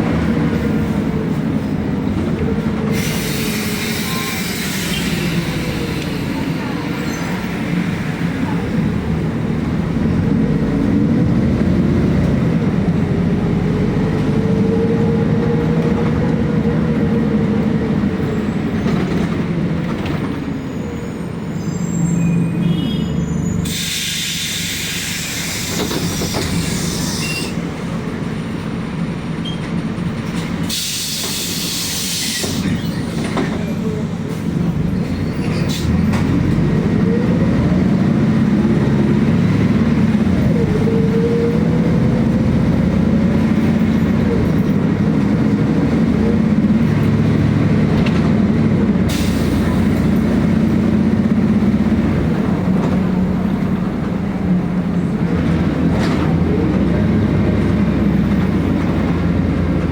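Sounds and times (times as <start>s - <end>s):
bus engine drone: 0.0s - 59.9s
compressed air hissing: 2.9s - 6.2s, 23.6s - 27.3s, 30.7s - 32.6s.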